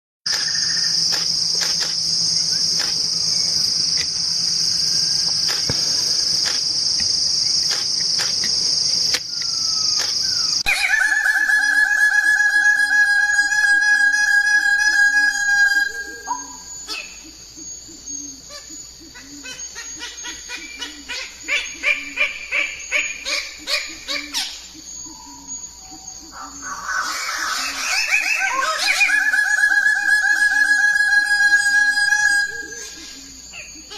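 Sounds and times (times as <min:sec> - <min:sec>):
steady pitched whistling tone: 0:00.3 - 0:18.4, 0:23.8 - 0:33.9
high-pitched insect drone: 0:00.3 - 0:33.9
bird chirps: 0:15.8 - 0:29.4.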